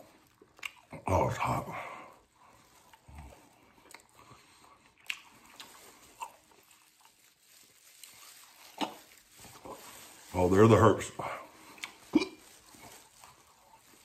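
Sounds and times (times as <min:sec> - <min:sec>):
chewing and biting: 0:00.0 - 0:01.0, 0:02.2 - 0:10.2, 0:11.5 - 0:14.0
paper bag rustling: 0:05.7 - 0:14.0.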